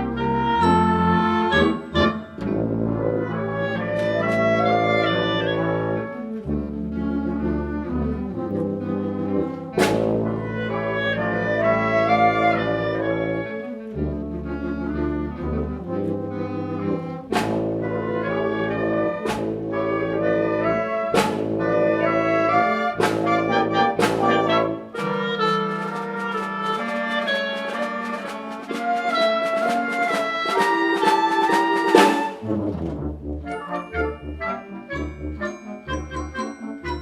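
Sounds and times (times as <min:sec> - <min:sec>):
brass and wind band chords: 0:00.0 - 0:37.0
percussion crashes: 0:17.3 - 0:18.2, 0:19.2 - 0:20.0, 0:21.2 - 0:21.9, 0:23.0 - 0:24.6.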